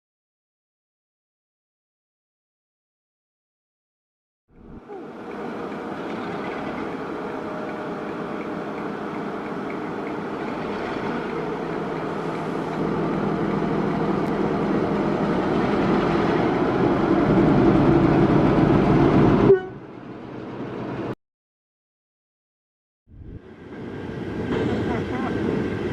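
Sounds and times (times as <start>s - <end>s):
train running: 4.6s - 21.2s, 23.4s - 25.9s.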